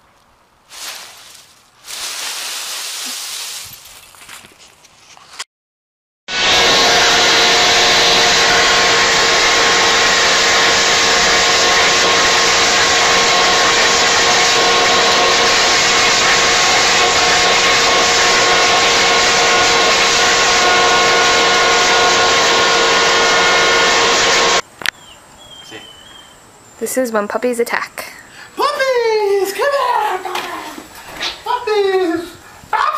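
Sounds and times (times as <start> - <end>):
leaf blower running: 6.3 - 24.6.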